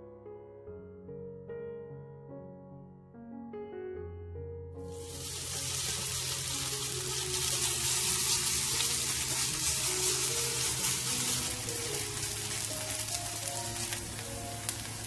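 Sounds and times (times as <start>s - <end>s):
soft piano music: 0.0s - 15.0s
batter sizzling in hot oil: 4.9s - 15.0s.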